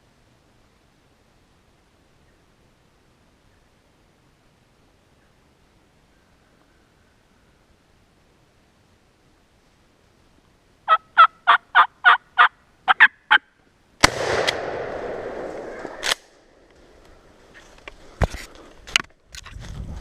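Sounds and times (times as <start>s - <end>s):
wild turkey calling: 10.9s - 13.6s.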